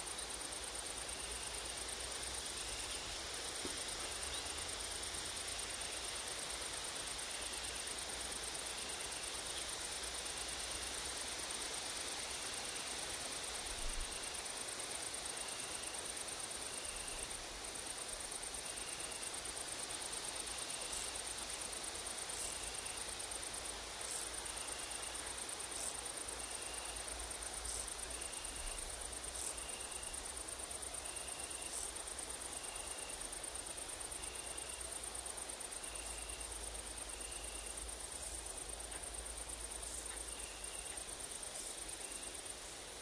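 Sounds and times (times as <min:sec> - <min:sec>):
grasshoppers and crickets buzzing: 0:00.0 - 0:43.0
short insect chirp: 0:16.6 - 0:43.0.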